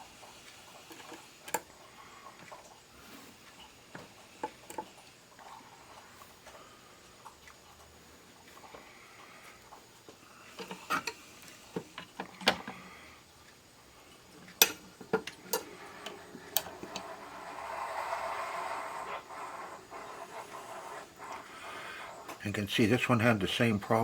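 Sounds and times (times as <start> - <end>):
scratchy rubbing: 15.6 - 22.4.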